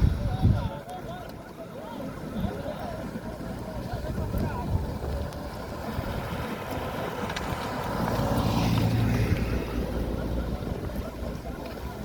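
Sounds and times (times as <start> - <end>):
wind buffeting microphone: 0.0 - 0.9, 3.6 - 12.0
vehicle engine running: 0.0 - 12.0.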